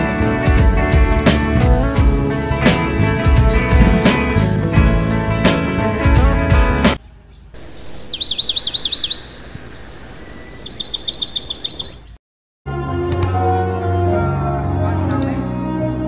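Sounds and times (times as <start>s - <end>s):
background music: 0.0s - 7.0s, 12.7s - 16.0s
small bird singing: 7.0s - 12.2s.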